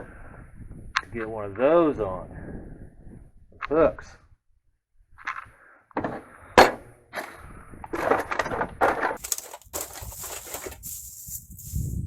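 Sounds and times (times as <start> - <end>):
objects clattering and rustling: 5.2 - 11.8.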